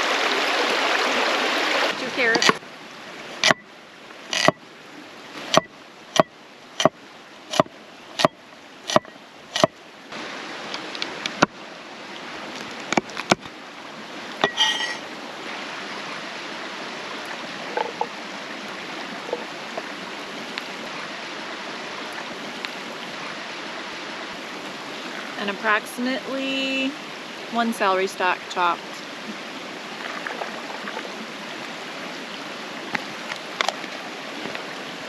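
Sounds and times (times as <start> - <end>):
creek rushing: 0.0 - 35.0.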